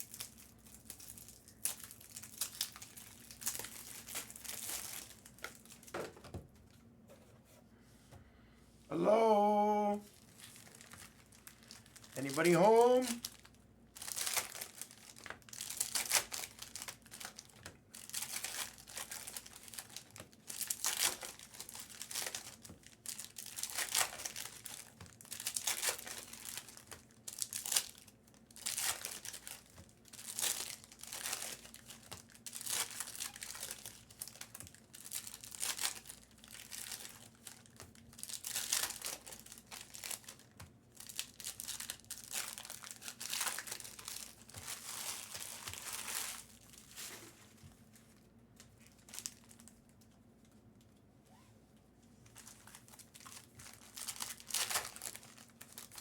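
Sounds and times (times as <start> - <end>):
foil wrappers tearing and crinkling: 0.0 - 6.0, 10.2 - 47.4, 48.6 - 49.7, 52.2 - 56.0.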